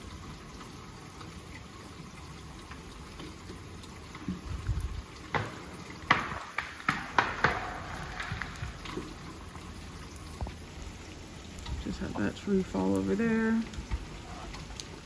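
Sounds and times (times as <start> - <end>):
steady hiss: 3.6 - 15.0
icy branches snapping and cracking: 5.4 - 9.4.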